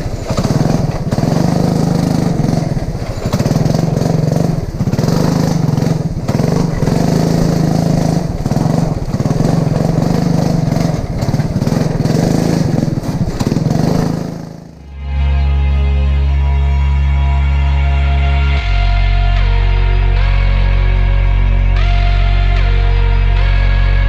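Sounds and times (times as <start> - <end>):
lawn mower engine revving: 0.0 - 17.8
music: 14.8 - 24.0.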